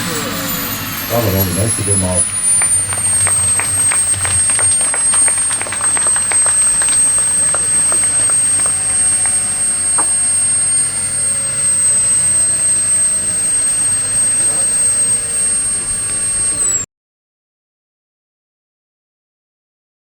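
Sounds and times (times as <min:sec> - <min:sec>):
gas turbine whine: 0:00.0 - 0:16.9
sharp clicks: 0:01.1 - 0:16.9.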